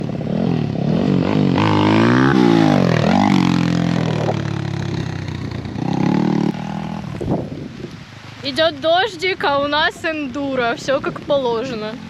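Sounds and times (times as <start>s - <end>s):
motorcycle engine revving: 0.0s - 7.6s, 10.4s - 12.0s.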